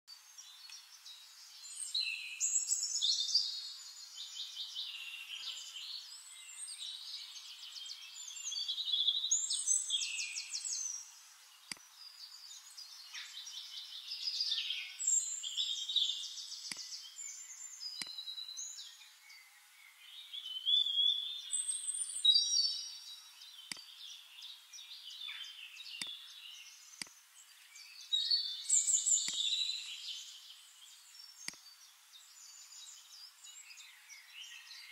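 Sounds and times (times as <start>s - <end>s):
songbird chorus: 0.1s - 34.9s
faint clicks: 11.6s - 11.9s, 16.6s - 17.0s, 17.9s - 18.2s, 23.6s - 23.9s, 29.2s - 29.5s, 31.4s - 31.7s.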